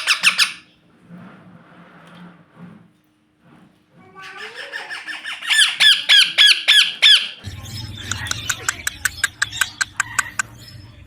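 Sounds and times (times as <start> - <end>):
parrot squawking: 0.0 - 0.7, 4.2 - 11.0.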